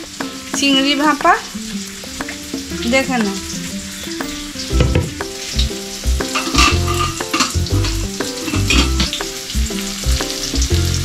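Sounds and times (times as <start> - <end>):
vegetables sizzling in oil: 0.0 - 11.0
background music with bass pulse: 2.2 - 11.0.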